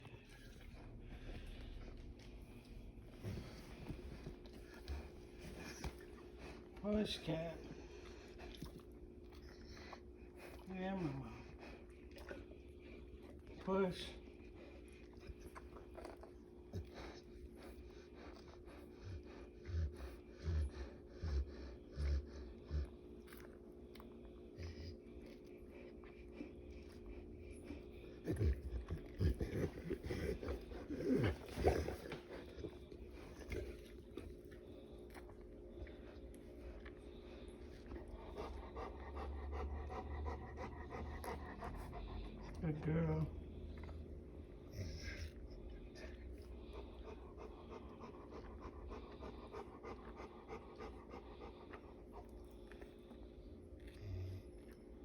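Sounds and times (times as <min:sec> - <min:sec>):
dog panting rapidly: 0:16.7 - 0:23.0, 0:35.9 - 0:43.3, 0:45.9 - 0:52.7
dog groaning: 0:27.3 - 0:34.5.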